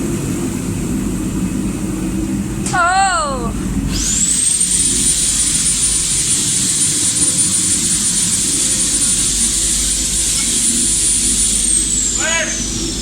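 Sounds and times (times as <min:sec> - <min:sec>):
power grinder whining: 0:03.9 - 0:13.0.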